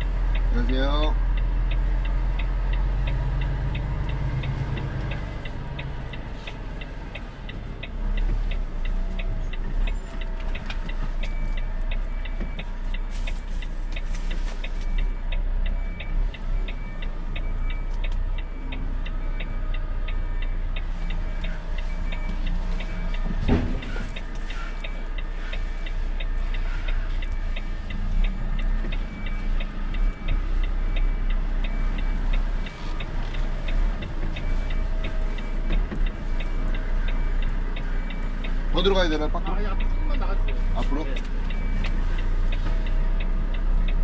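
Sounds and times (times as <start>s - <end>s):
diesel engine running: 0.0s - 44.0s
turn signal ticking: 0.0s - 44.0s.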